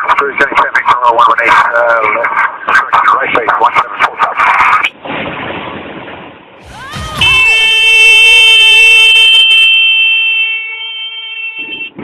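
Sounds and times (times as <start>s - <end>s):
stall warning horn wailing: 6.6s - 12.0s.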